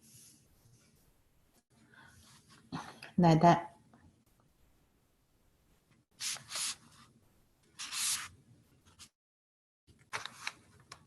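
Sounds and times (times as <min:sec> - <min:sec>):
brush strokes on paper: 0:00.0 - 0:02.6, 0:06.2 - 0:07.1, 0:07.8 - 0:08.3.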